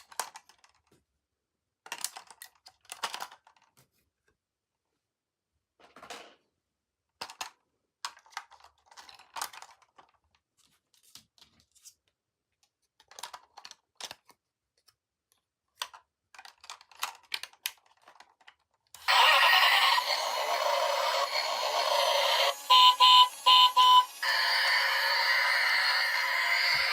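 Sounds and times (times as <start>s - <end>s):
plastic toys and packaging rattling: 0.0s - 4.4s, 5.8s - 26.9s
short beeps: 22.6s - 24.2s.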